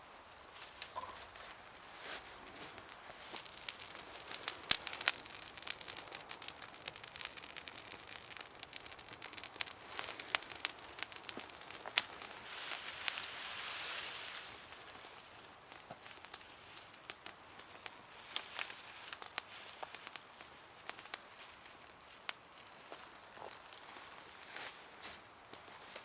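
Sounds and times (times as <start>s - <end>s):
campfire crackling and popping: 0.0s - 26.0s
fire hissing: 0.3s - 25.3s.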